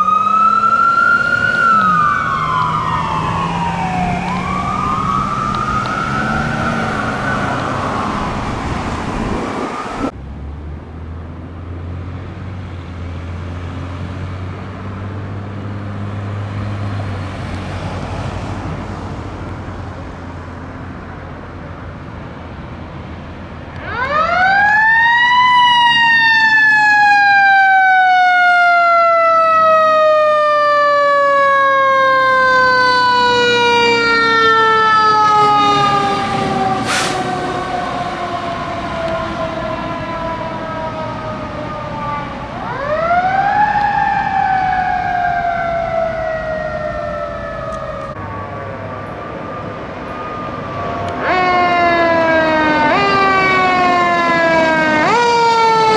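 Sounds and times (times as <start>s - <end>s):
ambulance siren wailing: 0.0s - 10.2s, 23.6s - 55.9s
fire engine engine rumbling: 0.0s - 55.9s.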